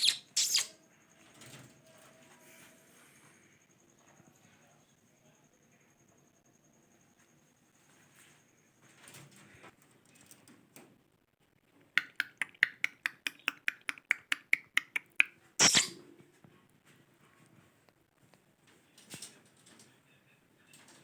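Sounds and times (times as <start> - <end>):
parrot harsh burst: 0.0 - 0.7, 15.6 - 16.0
parrot clicking: 12.0 - 15.9.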